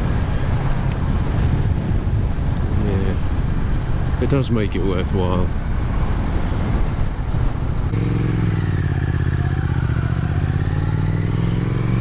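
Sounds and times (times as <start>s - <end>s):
motorcycle engine running: 7.9s - 10.6s.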